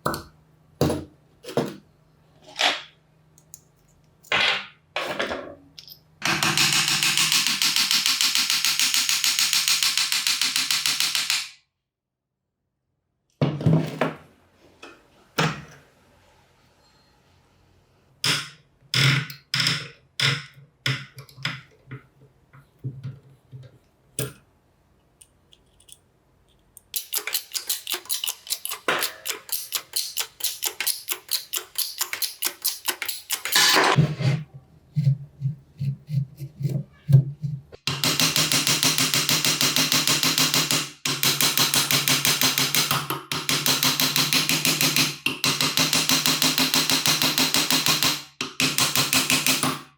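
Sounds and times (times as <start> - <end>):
hammer strikes on metal: 37.8 - 49.9.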